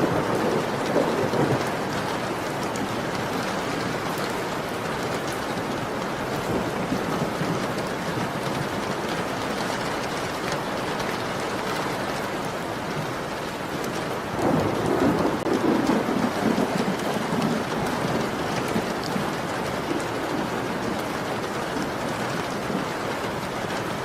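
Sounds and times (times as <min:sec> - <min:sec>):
thunder rumbling: 0:00.0 - 0:05.2, 0:14.2 - 0:24.0
heavy rain pattering: 0:00.0 - 0:24.0.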